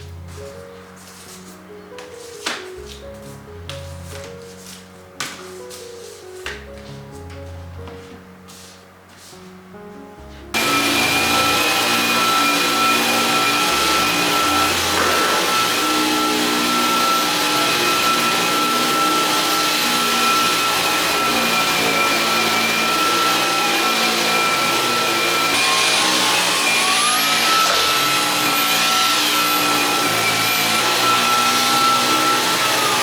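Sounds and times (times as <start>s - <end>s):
vacuum cleaner running: 10.5s - 33.0s.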